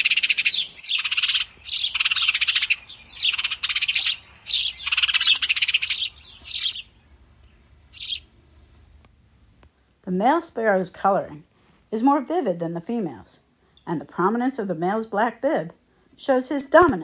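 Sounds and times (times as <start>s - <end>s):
sparrows chirping: 0.0s - 8.8s.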